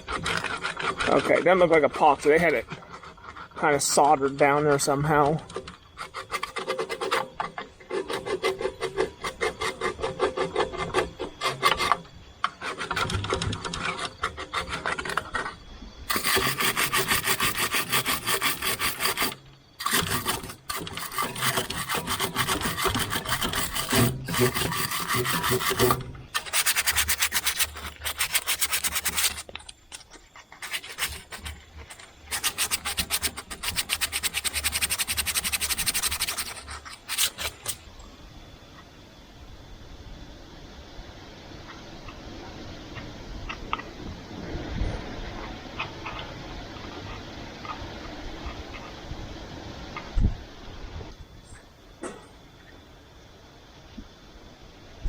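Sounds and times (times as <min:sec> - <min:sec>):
file scraping on metal: 0:00.0 - 0:37.8.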